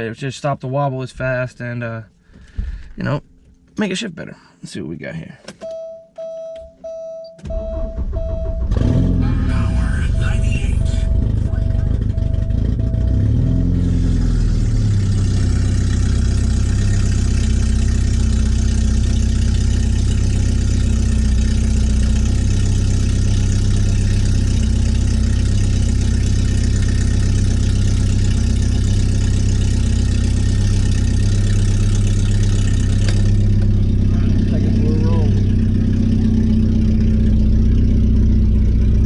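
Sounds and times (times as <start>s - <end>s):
car engine running loud: 8.6s - 39.0s.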